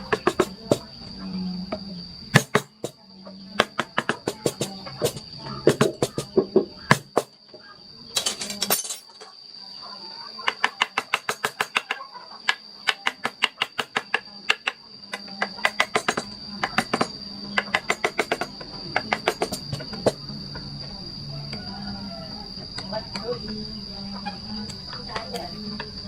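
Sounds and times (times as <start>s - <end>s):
high insect drone: 0.0s - 26.0s
mallet tapping chisel: 13.0s - 20.2s.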